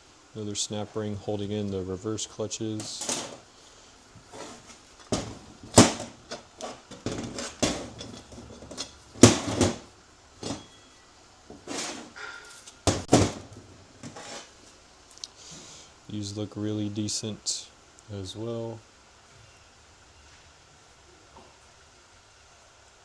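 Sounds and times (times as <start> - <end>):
loud metal knocks: 2.8 - 3.4, 4.3 - 10.7, 11.5 - 14.4
metal parts clicking and clanking: 2.8 - 3.5, 4.2 - 10.8, 11.5 - 14.5.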